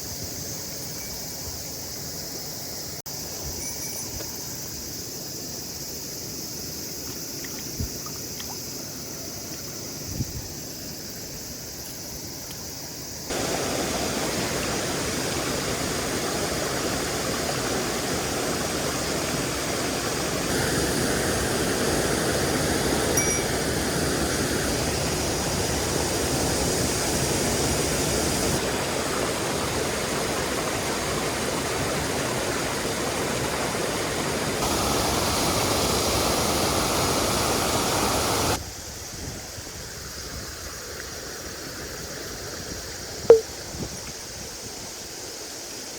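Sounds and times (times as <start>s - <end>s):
stream rushing over rocks: 13.3s - 38.6s.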